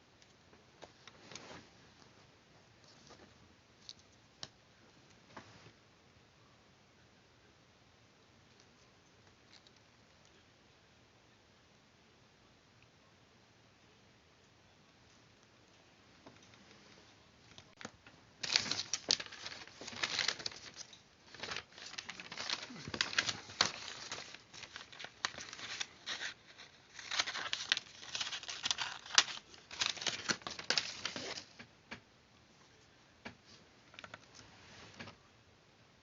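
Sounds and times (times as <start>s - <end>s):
paper rustling and crinkling: 16.4s - 31.6s.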